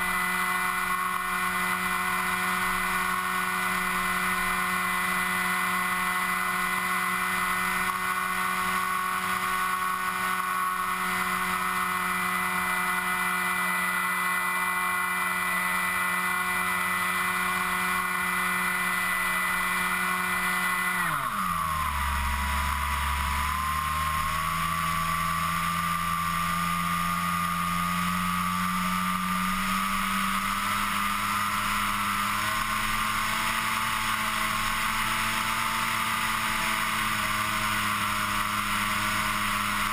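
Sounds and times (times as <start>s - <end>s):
model aircraft motor buzzing: 0.0s - 39.9s.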